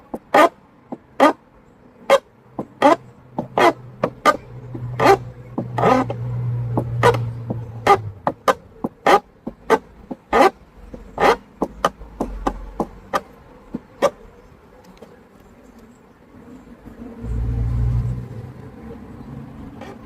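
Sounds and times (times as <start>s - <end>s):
sharp clicks and knocks: 2.6s - 14.2s.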